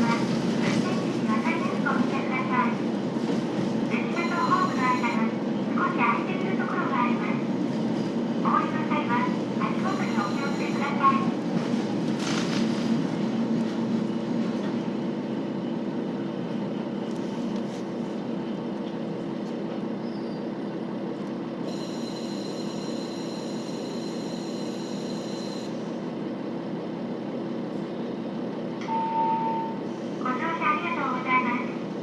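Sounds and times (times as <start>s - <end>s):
diesel railcar engine drone: 0.0s - 32.0s
train wheels on rails: 9.4s - 14.9s
short tone: 28.8s - 29.8s.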